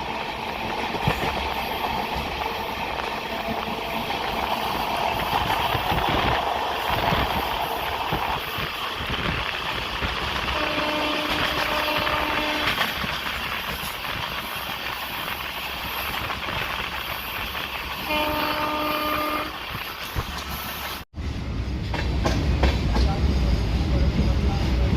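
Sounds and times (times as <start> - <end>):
train rumbling and rattling: 0.0 - 24.9
train horn blasts: 10.5 - 12.9, 18.0 - 19.6.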